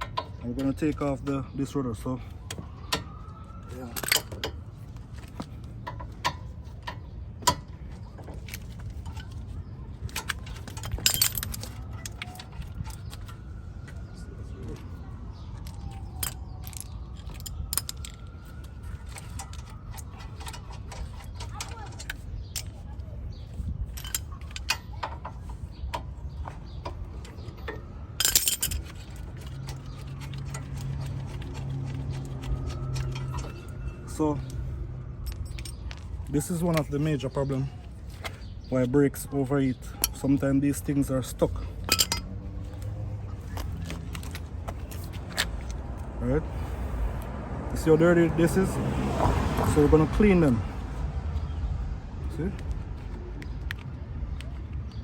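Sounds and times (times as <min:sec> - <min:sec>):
metal parts clinking: 0:03.8 - 0:04.6, 0:05.3 - 0:13.5, 0:15.6 - 0:25.7, 0:26.3 - 0:34.6, 0:35.2 - 0:37.2, 0:39.9 - 0:45.8.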